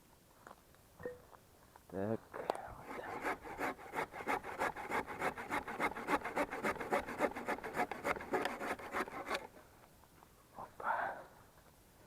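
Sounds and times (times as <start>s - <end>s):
hand saw cutting wood: 2.8s - 9.5s.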